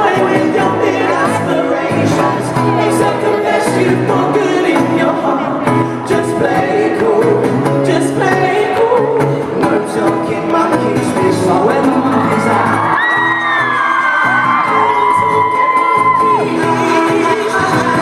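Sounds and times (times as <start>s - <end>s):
person singing: 0.0s - 18.0s
pop band playing live: 0.0s - 18.0s
audience screaming and whooping: 11.7s - 18.0s.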